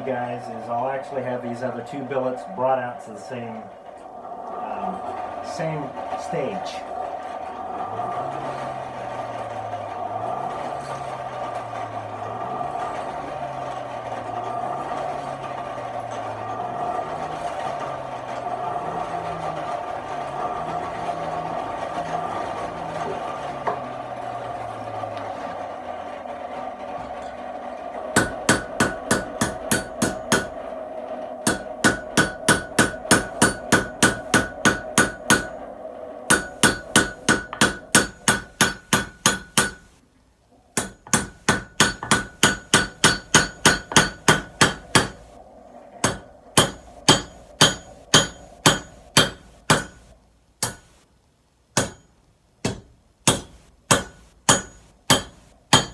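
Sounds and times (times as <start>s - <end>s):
steady hum: 0.0s - 55.9s
hammer ringing on anvil: 31.5s - 35.5s, 36.3s - 39.8s, 40.8s - 45.2s, 46.0s - 50.0s, 51.8s - 55.9s.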